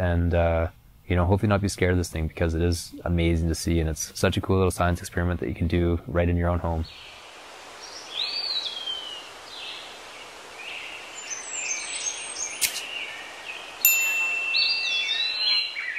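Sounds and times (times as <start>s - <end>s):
outdoor hiss: 0.0s - 15.9s
songbirds chirping: 0.0s - 15.9s
sharp click: 12.6s - 12.9s
bright tone: 13.8s - 15.8s.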